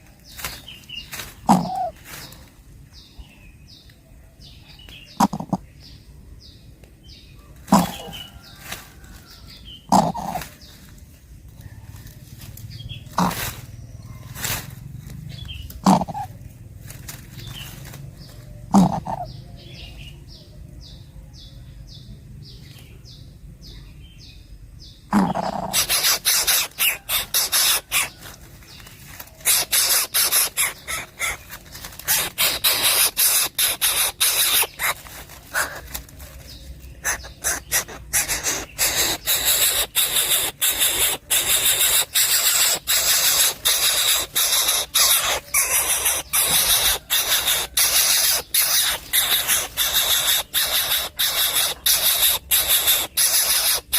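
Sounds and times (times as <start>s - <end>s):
nestling hissing: 25.2s - 28.2s, 29.4s - 31.4s, 32.0s - 35.9s, 37.0s - 53.9s.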